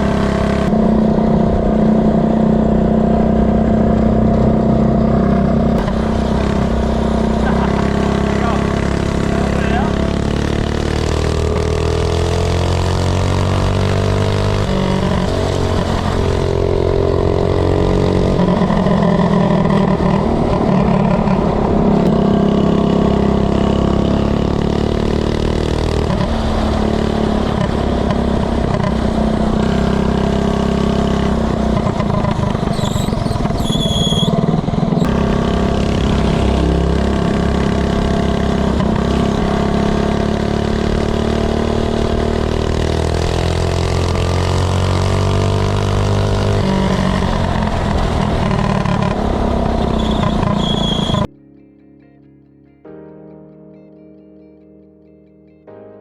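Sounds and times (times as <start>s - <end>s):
minibike engine revving: 0.0s - 51.3s
high-pitched squeals: 32.6s - 37.4s, 46.6s - 51.4s.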